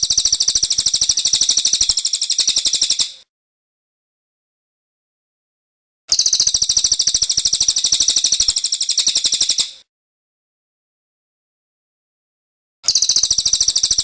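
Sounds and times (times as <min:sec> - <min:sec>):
songbird chattering trill: 0:00.0 - 0:03.2, 0:06.1 - 0:09.8, 0:12.9 - 0:14.0.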